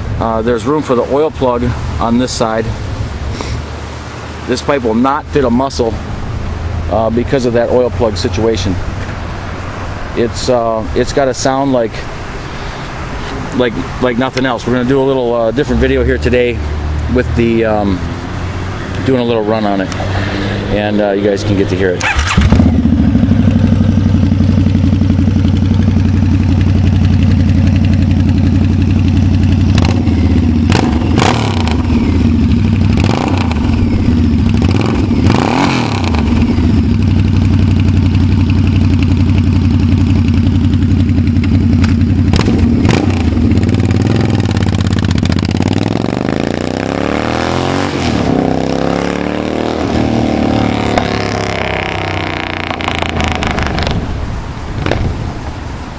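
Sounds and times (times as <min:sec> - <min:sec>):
sharp exhaust cracks: 0:10.3 - 0:55.5
motorcycle engine deep exhaust: 0:21.3 - 0:55.5.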